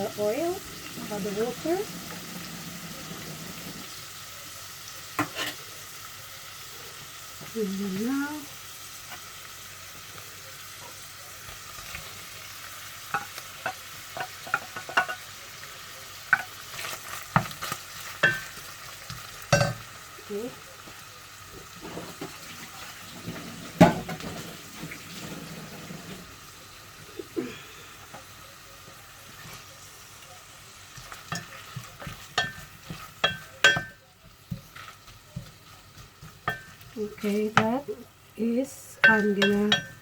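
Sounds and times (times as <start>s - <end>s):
fish sizzling in a frying pan: 0.0s - 40.0s
utensil scraping a pan: 0.2s - 4.0s, 5.2s - 5.6s, 21.7s - 26.3s, 31.0s - 37.7s.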